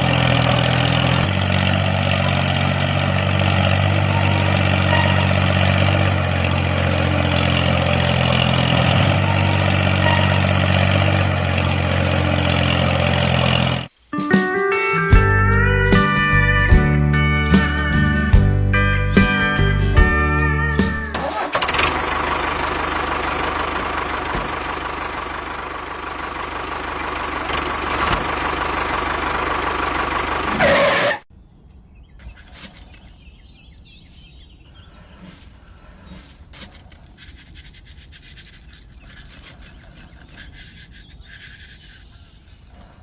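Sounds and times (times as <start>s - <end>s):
scraping: 0.0s - 13.9s, 32.2s - 33.2s, 34.1s - 43.0s.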